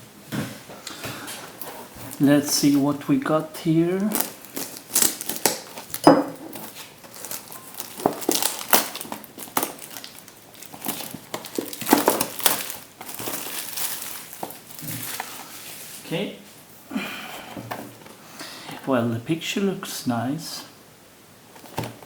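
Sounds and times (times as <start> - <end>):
food packaging crinkling: 1.5 - 16.0.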